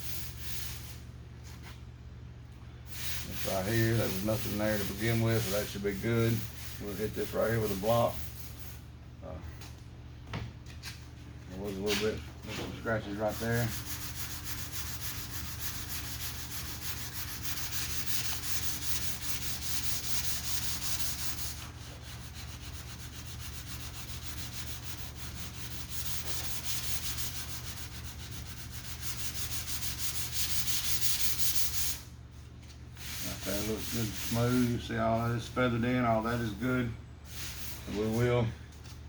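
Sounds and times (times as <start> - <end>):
sanding block rasping on panel: 3.2 - 8.6, 12.9 - 32.1, 33.0 - 34.9, 37.4 - 38.3.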